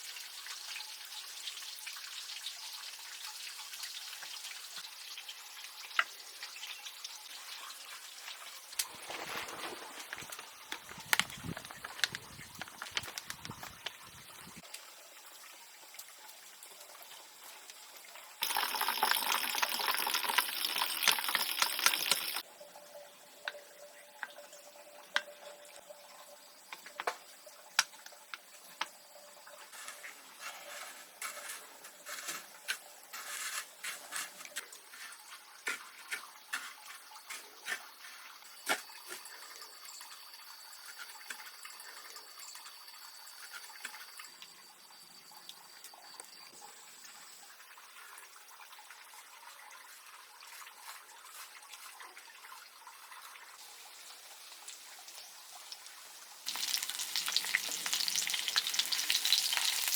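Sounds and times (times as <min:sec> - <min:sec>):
water gushing: 0:07.3 - 0:15.4, 0:18.0 - 0:22.4, 0:47.8 - 0:59.9.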